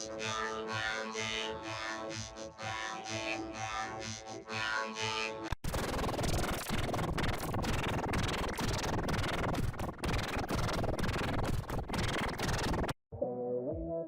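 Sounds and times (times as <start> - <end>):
harsh distorted static noise: 5.6 - 13.0.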